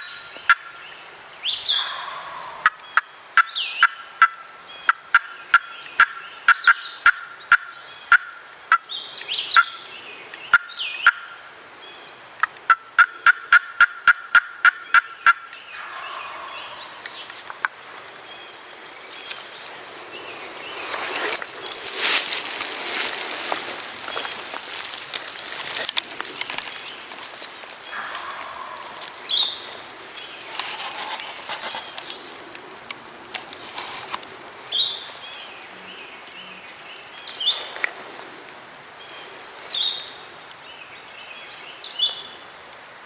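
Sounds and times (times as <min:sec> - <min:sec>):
turkey clucking and calling: 0:00.0 - 0:00.8, 0:01.7 - 0:08.9, 0:09.5 - 0:09.8, 0:10.5 - 0:11.4, 0:12.4 - 0:17.6, 0:27.8 - 0:30.3
rustling noise: 0:18.9 - 0:38.6.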